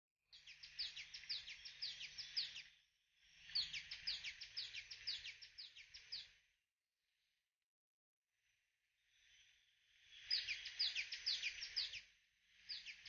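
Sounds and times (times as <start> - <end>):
small bird chirping: 0.3 - 6.5, 9.1 - 13.0.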